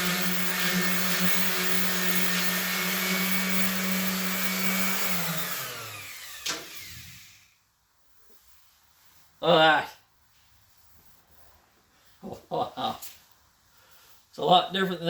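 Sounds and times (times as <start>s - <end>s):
electric sander running: 0.0s - 7.4s
motor winding down: 0.0s - 7.6s.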